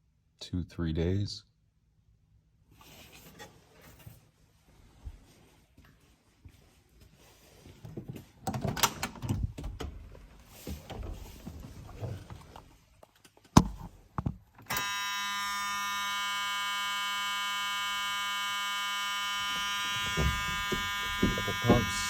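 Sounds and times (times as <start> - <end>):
dashboard warning buzzer: 14.7 - 22.0
car door shutting: 20.0 - 22.0
knocks and rustling in cab: 20.0 - 22.0.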